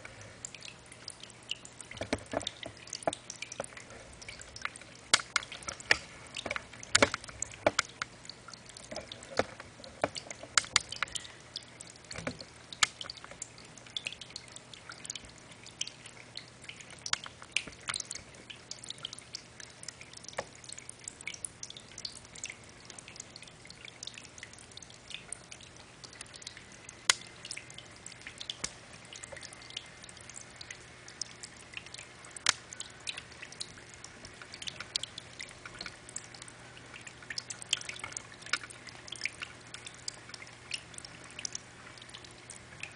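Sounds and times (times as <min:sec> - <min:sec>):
faint steady hum: 0:00.0 - 0:42.9
water dripping and splashing: 0:00.0 - 0:42.9.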